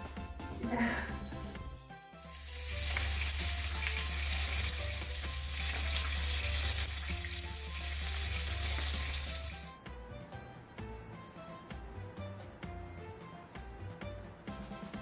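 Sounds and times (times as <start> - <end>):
meat sizzling in frying pan: 2.2 - 9.7.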